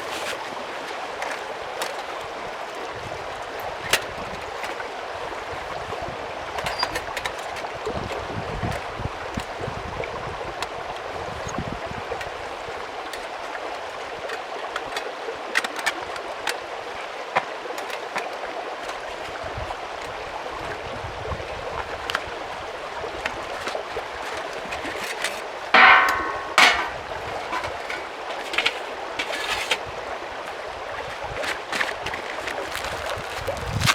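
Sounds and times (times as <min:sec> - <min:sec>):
stream flowing: 0:08.9 - 0:33.0.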